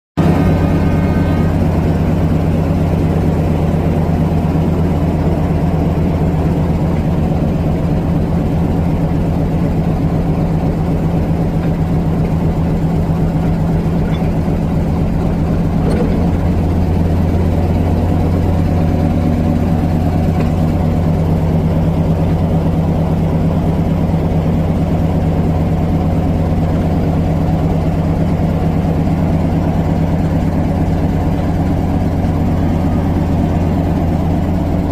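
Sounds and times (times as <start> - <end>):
diesel locomotive idling: 0.2 - 34.9.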